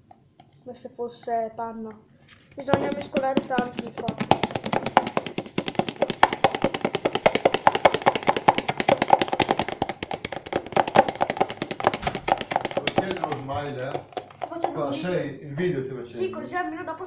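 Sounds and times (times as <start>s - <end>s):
utensil stirring thick slime: 2.6s - 14.8s
utensil tapping against bowl: 2.6s - 14.8s.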